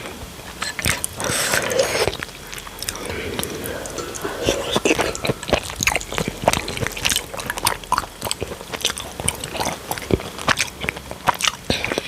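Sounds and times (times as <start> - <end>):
wet chewing and mouth smacks: 5.5 - 12.0.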